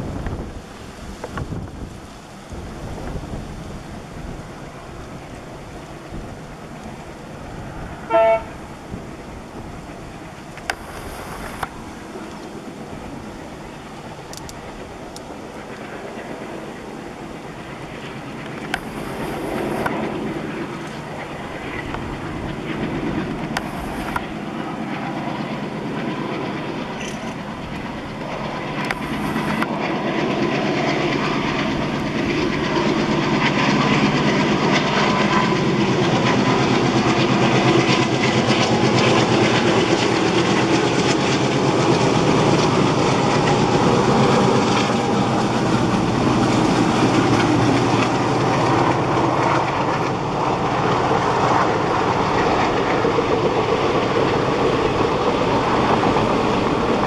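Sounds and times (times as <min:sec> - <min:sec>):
train wheels clickety-clack: 0:26.9 - 0:32.7, 0:36.0 - 0:57.0.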